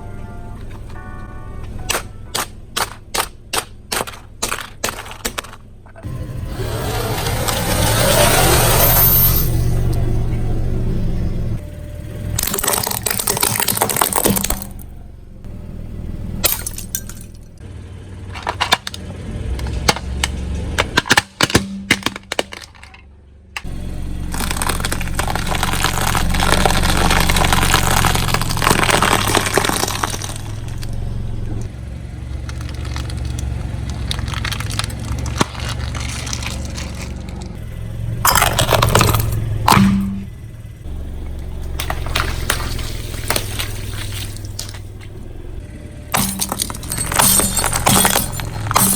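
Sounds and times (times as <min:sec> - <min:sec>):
tyre crushing brittle objects: 0:01.8 - 0:05.7, 0:12.4 - 0:14.8, 0:18.3 - 0:23.0, 0:23.6 - 0:31.0, 0:31.8 - 0:37.6, 0:38.2 - 0:40.3, 0:41.6 - 0:45.2, 0:46.1 - 0:48.9.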